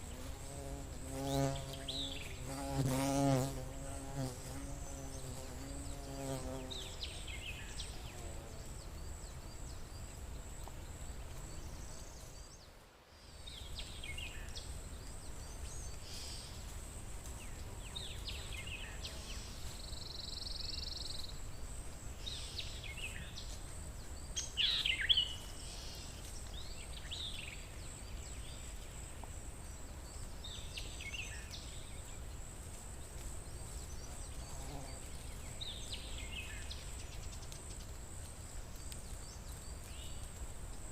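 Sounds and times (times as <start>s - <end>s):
bird calls and chirps: 22.2s - 28.8s.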